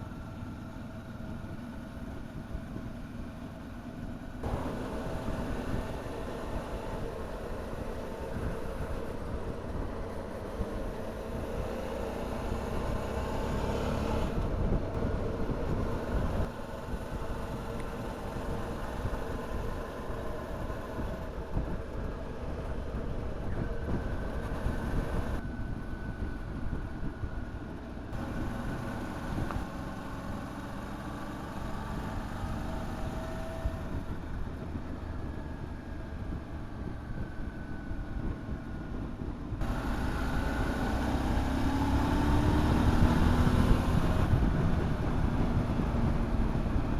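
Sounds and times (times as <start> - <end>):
motorcycle engine running: 0.0 - 46.9
wind rush: 13.8 - 27.6, 33.2 - 46.9.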